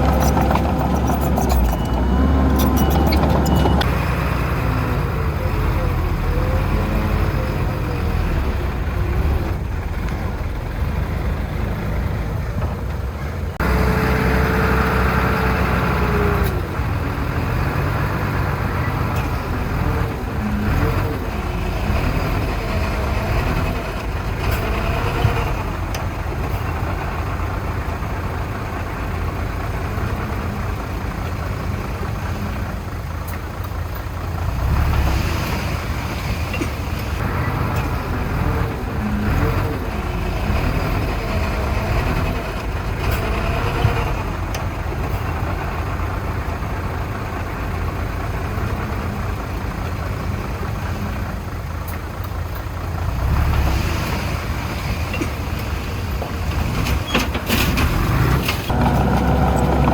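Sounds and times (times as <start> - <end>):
held tone: 0.0 - 3.9
heavy machinery diesel engines: 0.0 - 59.9.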